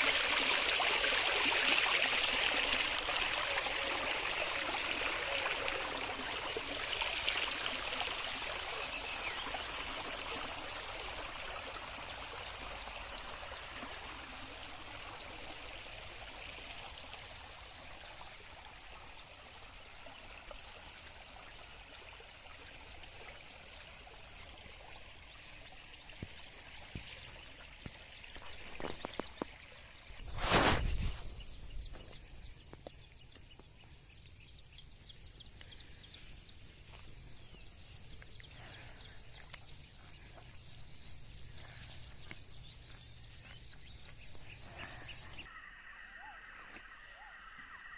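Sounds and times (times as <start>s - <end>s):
flowing water: 0.0s - 33.6s
insects chirping: 0.0s - 47.9s.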